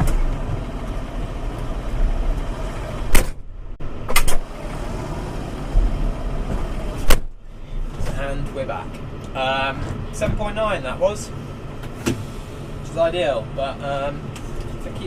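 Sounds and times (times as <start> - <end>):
tractor engine from inside cab: 0.0 - 15.0
sharp knocks: 7.0 - 7.4.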